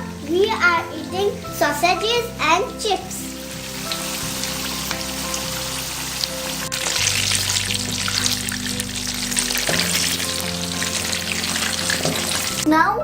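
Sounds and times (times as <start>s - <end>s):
sausages and chips sizzling: 0.0s - 12.7s
background music: 0.0s - 13.0s.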